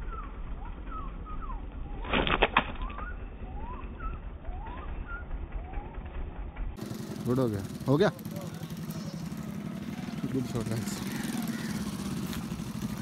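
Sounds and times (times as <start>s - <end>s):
low steady rumble: 0.0s - 13.0s
small birds chirping: 6.8s - 13.0s.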